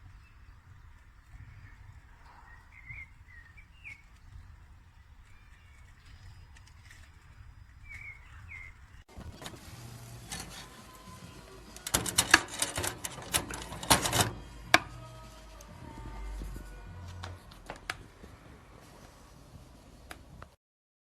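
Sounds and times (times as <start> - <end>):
faint bird chirps: 0.0 - 9.1
sharp clicks and clattering knocks: 9.1 - 15.0.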